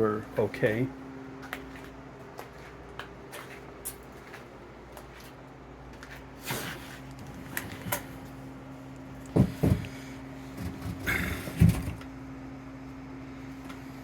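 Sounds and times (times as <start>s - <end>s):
steady low hum: 0.0s - 14.0s
knocks and thumps: 9.3s - 10.0s, 10.6s - 12.0s.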